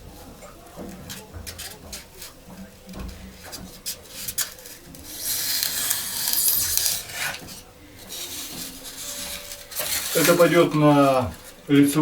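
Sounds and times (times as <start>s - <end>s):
knife blade scraping cut: 4.4s - 7.4s.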